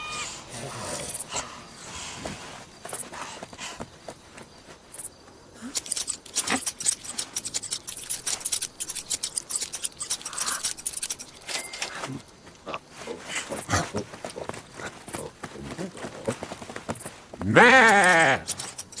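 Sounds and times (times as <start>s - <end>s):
cartoon hoof footstep clicks: 13.6s - 19.0s.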